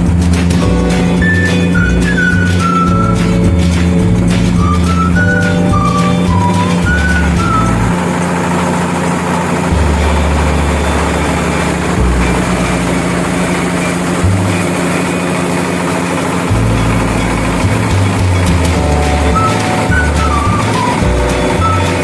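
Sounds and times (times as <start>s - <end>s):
milling machine running: 4.2s - 22.0s.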